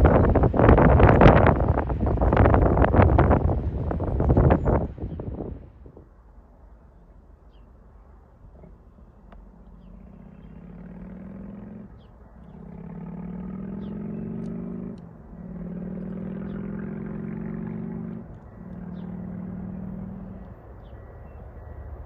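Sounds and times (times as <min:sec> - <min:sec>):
birds chirping faintly: 0:06.6 - 0:22.0.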